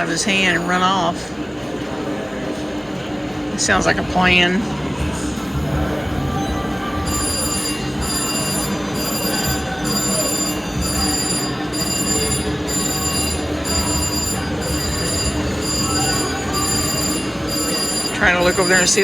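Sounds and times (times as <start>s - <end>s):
casino din: 5.4s - 19.0s
slot machine chime: 5.4s - 19.0s.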